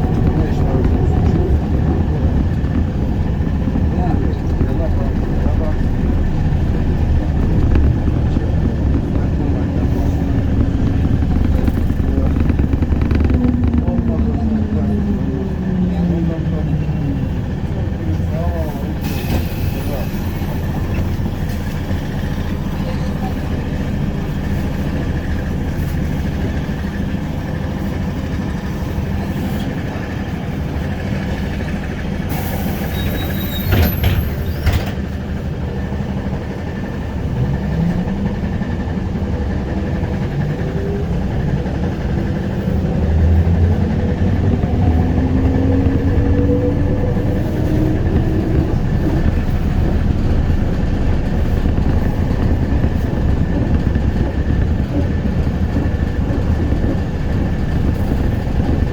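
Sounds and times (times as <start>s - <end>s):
trolleybus rumble and road noise: 0.0s - 58.9s
knocks: 7.1s - 14.5s.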